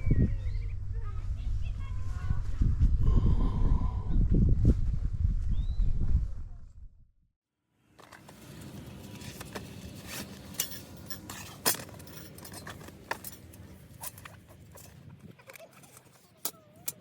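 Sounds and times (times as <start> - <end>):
metallic clinks of camp gear: 8.2 - 17.0.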